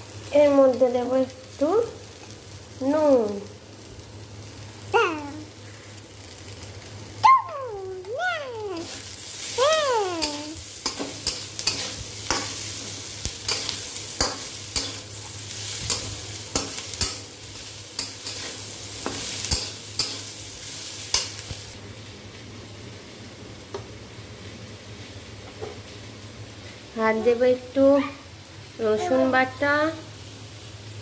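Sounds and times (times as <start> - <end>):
vegetables sizzling in oil: 0.0 - 31.0
spatula scraping pan: 8.8 - 17.2.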